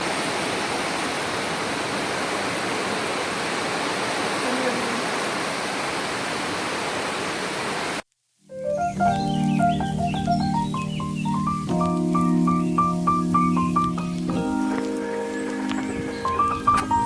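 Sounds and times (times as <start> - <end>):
heavy rain: 0.0 - 8.1.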